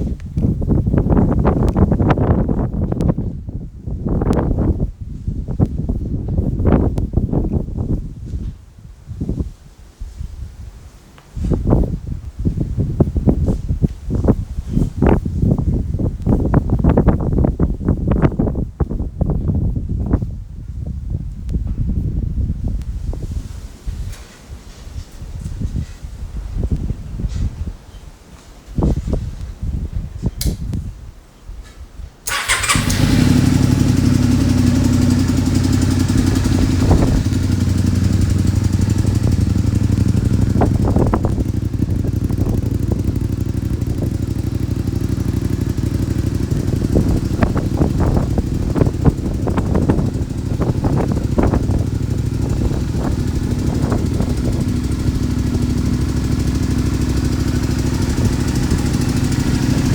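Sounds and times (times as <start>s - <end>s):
motorcycle engine idling: 32.3s - 59.9s.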